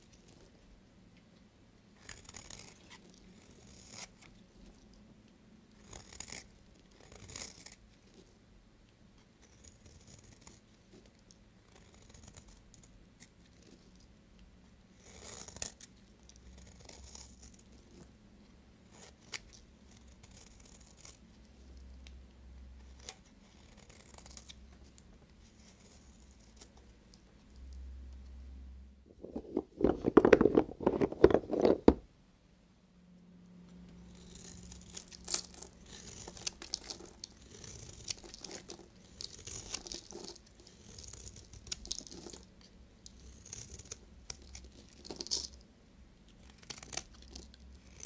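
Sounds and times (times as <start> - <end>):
knife scraping soap: 2.0 - 5.0, 5.7 - 8.3, 9.2 - 14.1, 14.9 - 18.1, 18.9 - 22.0, 22.8 - 27.7, 34.0 - 45.6, 46.3 - 48.0.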